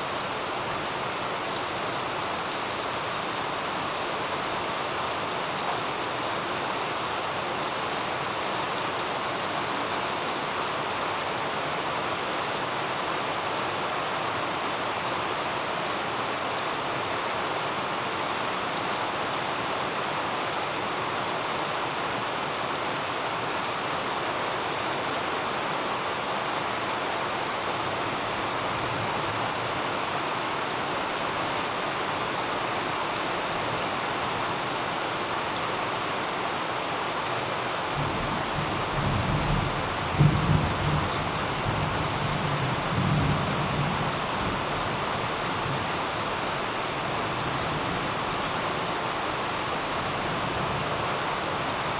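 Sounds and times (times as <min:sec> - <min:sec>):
rain falling: 0:00.0 - 0:51.9.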